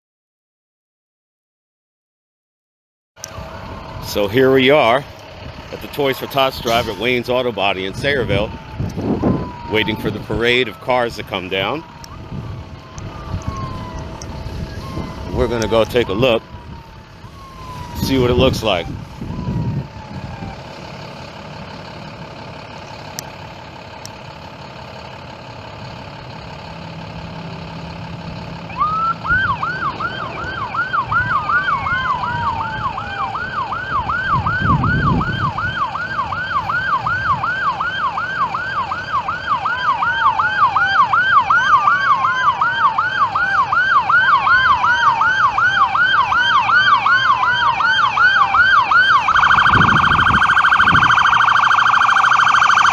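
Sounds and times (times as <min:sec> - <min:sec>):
siren with slow falling sweeps: 0:03.2 - 0:05.1, 0:05.7 - 0:52.9
fast yelp siren: 0:05.7 - 0:21.1, 0:28.6 - 0:52.9.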